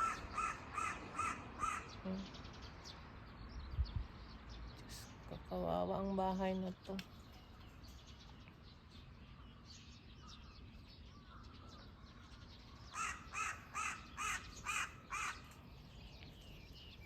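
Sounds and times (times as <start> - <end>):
bird calling: 0.0 - 2.6, 9.3 - 17.0
faint outdoor background: 0.0 - 17.0.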